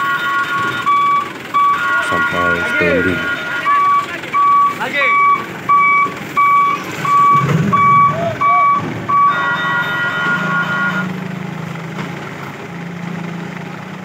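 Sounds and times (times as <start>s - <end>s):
multi-tone sound: 0.0s - 11.1s
truck reversing alarm beeping: 0.0s - 11.8s
truck engine humming: 0.0s - 14.0s.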